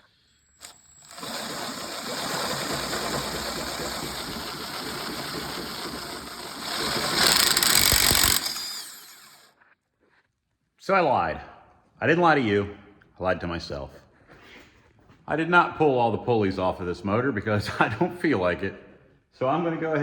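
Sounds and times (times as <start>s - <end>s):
power impact wrench running: 0.1s - 9.5s.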